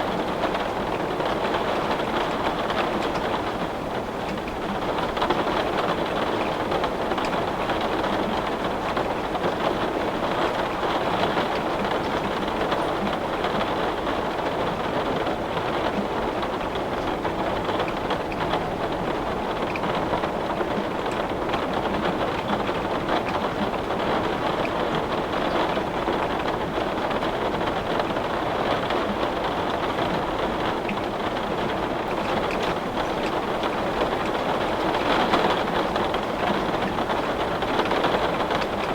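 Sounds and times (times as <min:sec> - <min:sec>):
heavy rain on window glass: 0:00.0 - 0:38.9.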